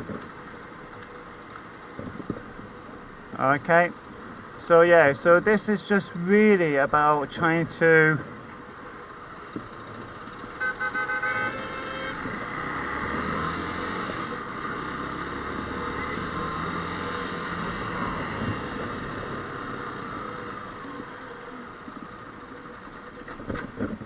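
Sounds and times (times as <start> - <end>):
road noise: 0.0 - 24.0
vehicle horn short toots: 10.6 - 12.3.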